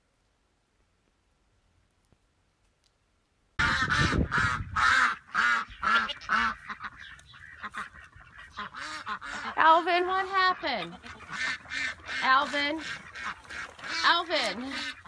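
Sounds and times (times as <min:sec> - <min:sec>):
animal calling rapidly: 0:03.6 - 0:15.0.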